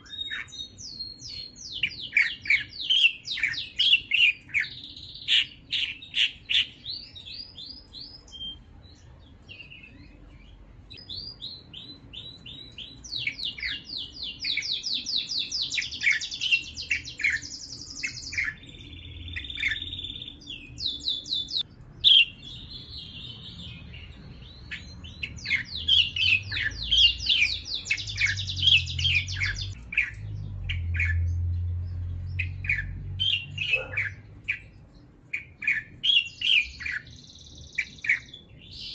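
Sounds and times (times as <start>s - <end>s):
small bird chirping and trilling: 0.0s - 38.9s
low rumble: 28.0s - 33.6s.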